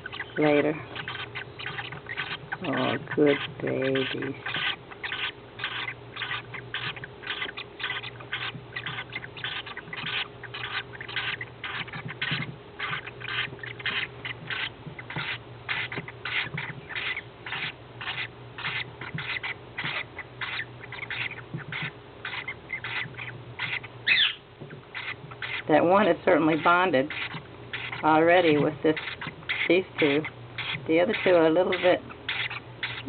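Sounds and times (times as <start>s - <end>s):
bird chicks chirping: 0.0s - 33.0s
faint steady hum: 0.0s - 33.0s.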